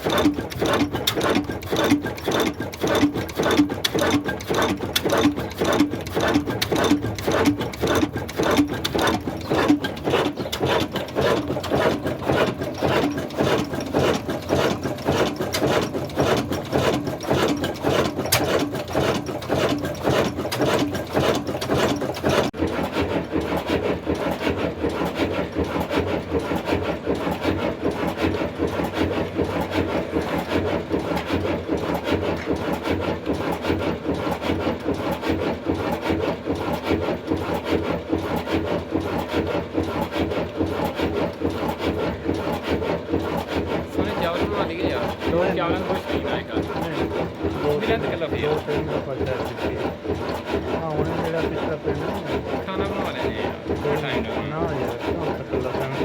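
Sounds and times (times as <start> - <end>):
diesel engine running: 40.0 - 56.0.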